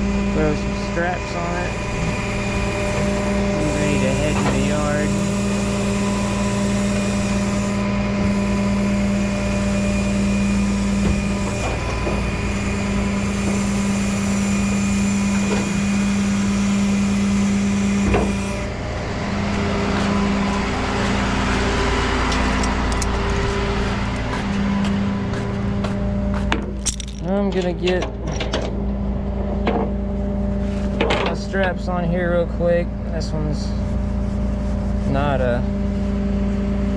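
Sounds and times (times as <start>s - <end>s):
truck engine idling: 0.4s - 14.7s.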